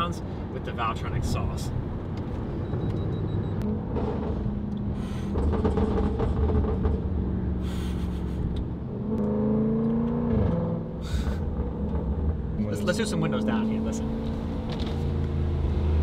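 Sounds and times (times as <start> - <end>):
car engine from inside cabin: 8.5 - 16.0.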